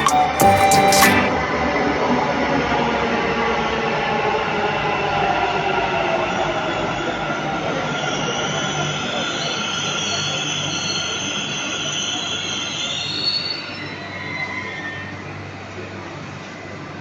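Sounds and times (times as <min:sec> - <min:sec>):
train wheels squealing: 0:06.6 - 0:15.4.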